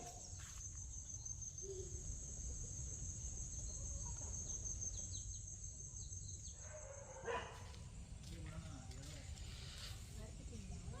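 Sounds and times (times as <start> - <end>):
insects chirring: 0.0 - 8.2.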